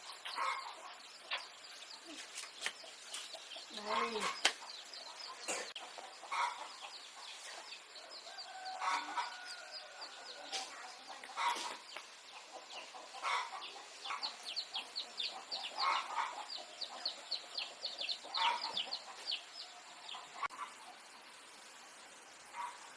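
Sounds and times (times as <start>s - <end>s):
baby birds chirping: 0.0s - 21.0s
chicken clucking: 0.0s - 21.0s.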